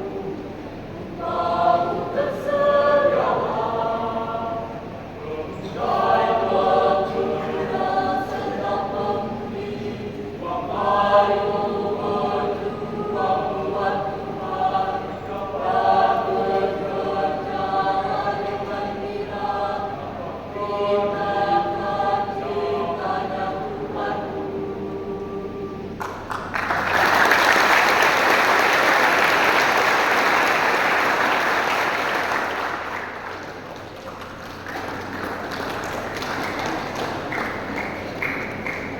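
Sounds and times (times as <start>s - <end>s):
youth choir singing: 0.0s - 26.0s.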